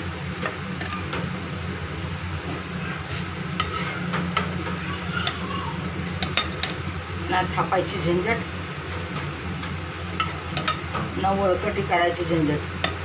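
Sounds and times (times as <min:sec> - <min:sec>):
food sizzling in hot oil: 0:00.0 - 0:13.0
steady low hum: 0:00.0 - 0:13.0
spatula scraping a pan: 0:03.0 - 0:05.4.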